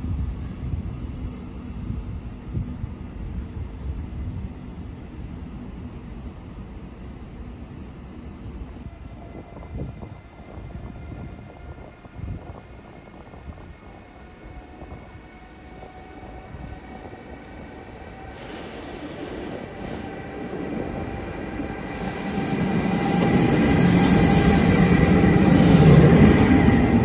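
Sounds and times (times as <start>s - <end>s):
train rumble: 0.0s - 27.0s
locomotive whining tones: 12.5s - 27.0s.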